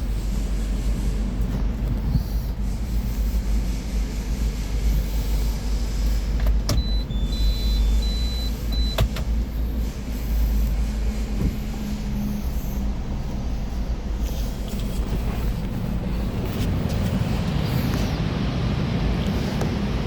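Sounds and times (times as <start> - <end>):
car rumbling: 0.0 - 20.0
high-pitched beeps: 6.8 - 9.0.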